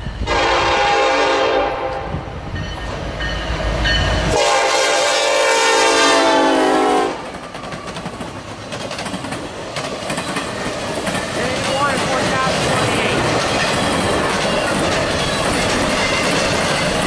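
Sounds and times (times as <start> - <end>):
diesel locomotive rumbling: 0.0 - 17.0
train horn blast: 0.2 - 2.3, 4.3 - 7.2
train wheels clacking on rail joints: 7.2 - 17.0.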